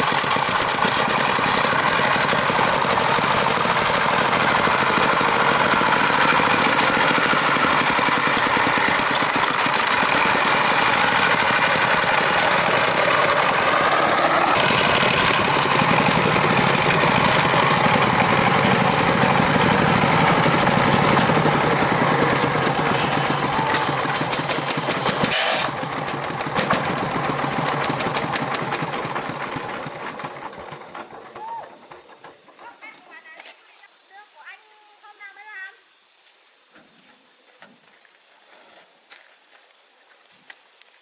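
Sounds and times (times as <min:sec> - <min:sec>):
truck engine running with even pulsing: 0:00.0 - 0:32.7.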